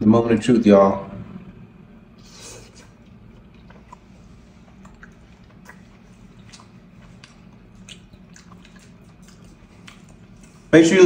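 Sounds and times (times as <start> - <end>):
low steady hum: 0.0 - 11.0
person chewing: 2.2 - 10.7.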